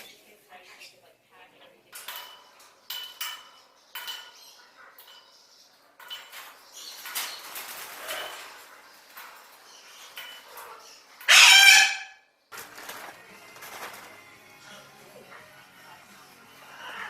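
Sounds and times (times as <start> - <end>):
parrots chirping and squawking: 2.1 - 17.0
loud harsh parrot squawk: 11.3 - 12.3, 16.6 - 17.0.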